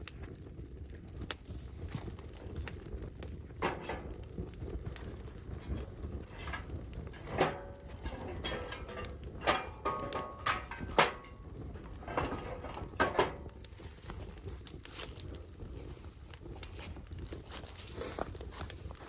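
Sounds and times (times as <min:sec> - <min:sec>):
hard objects knocking and clinking: 0:05.4 - 0:13.6.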